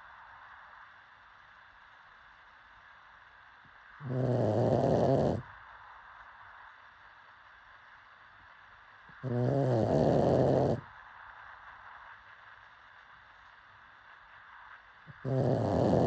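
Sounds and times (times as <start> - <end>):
dog snoring: 4.0 - 5.5, 9.1 - 10.9, 15.1 - 16.0.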